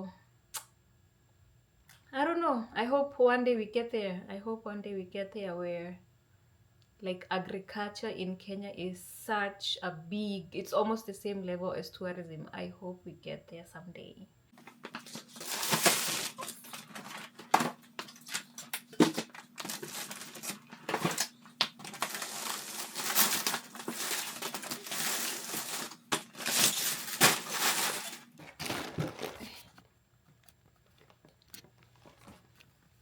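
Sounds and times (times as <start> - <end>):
plastic packaging crinkling: 14.6 - 29.8.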